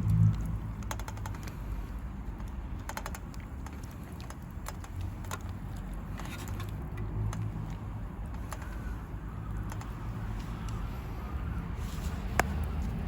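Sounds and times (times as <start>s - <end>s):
low steady rumble: 0.0s - 6.2s.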